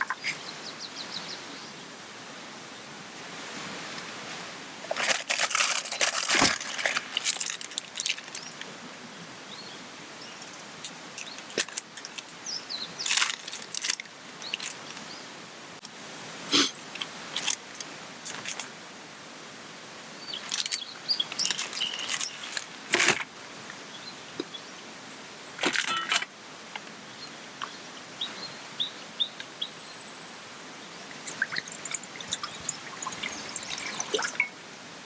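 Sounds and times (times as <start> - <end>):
clattering and rustling handling noises: 4.8 - 8.6, 13.0 - 15.0, 20.5 - 23.3, 25.6 - 26.9
faint high bird chirps: 20.1 - 22.5, 27.2 - 34.5
rain hissing: 30.9 - 34.8.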